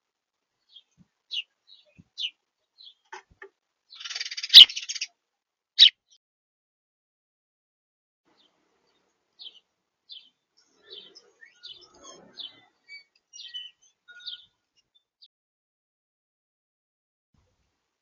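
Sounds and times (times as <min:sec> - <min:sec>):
small birds chirping: 0:00.6 - 0:05.1, 0:05.8 - 0:06.2, 0:08.3 - 0:15.2.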